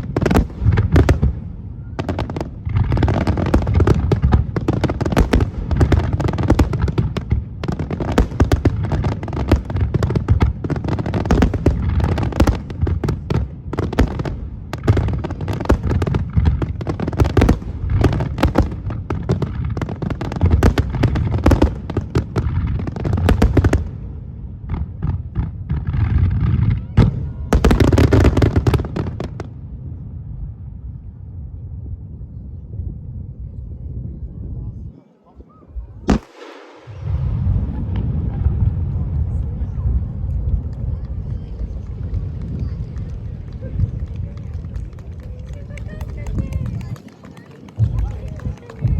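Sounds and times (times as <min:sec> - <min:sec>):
fireworks bangs and crackles: 0:00.0 - 0:48.9
low rumble: 0:29.4 - 0:34.9, 0:36.7 - 0:47.0.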